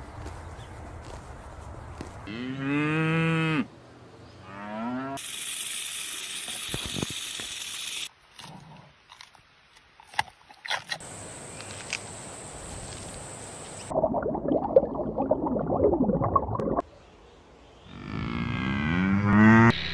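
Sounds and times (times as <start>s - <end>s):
bamboo being chewed: 8.2s - 12.1s.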